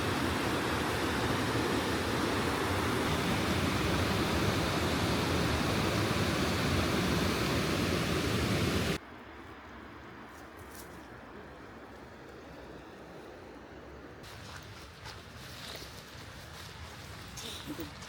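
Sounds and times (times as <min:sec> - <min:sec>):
waterfall roaring: 0:00.0 - 0:09.0.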